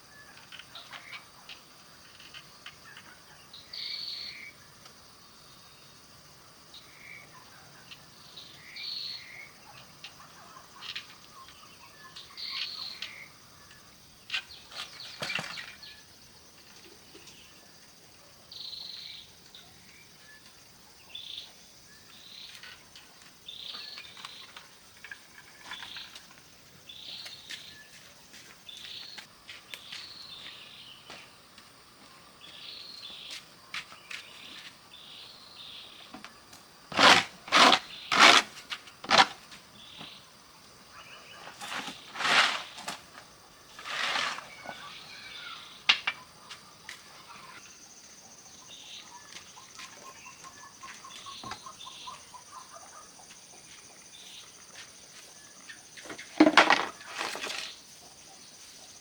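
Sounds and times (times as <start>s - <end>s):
insect drone: 34.0s - 50.8s.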